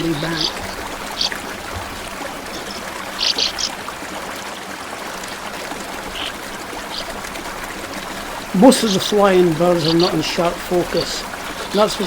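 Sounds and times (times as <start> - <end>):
small stream flowing: 0.0 - 12.0
short high bird calls: 2.5 - 3.7.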